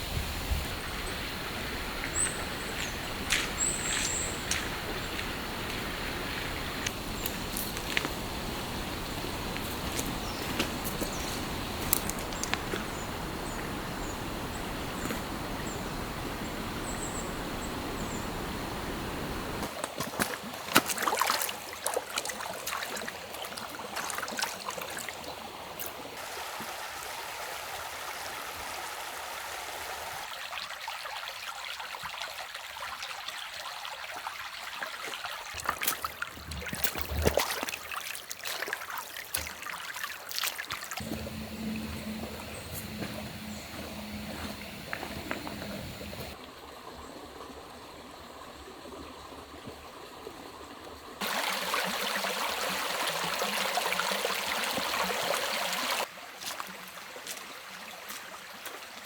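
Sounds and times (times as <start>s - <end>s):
stream flowing and trickling: 0.0s - 59.0s.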